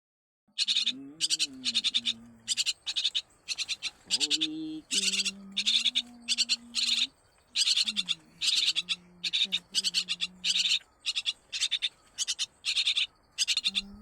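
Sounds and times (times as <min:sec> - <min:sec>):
baby birds begging calls: 0:00.6 - 0:14.0
low steady humming tone: 0:00.9 - 0:11.1.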